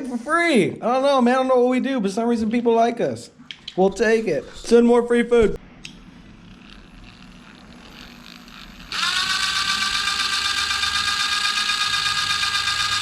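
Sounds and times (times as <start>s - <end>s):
electric power tool motor whining: 6.4s - 13.0s.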